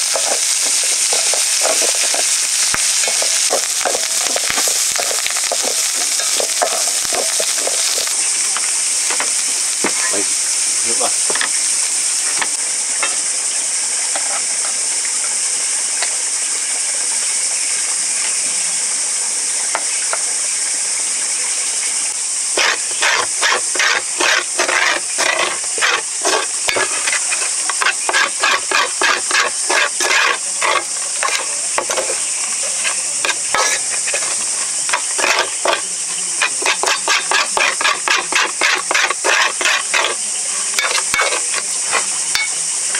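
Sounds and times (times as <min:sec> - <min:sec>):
utensil scraping a pan: 0:00.0 - 0:08.2, 0:22.5 - 0:42.5
food sizzling in a pan: 0:00.0 - 0:42.9.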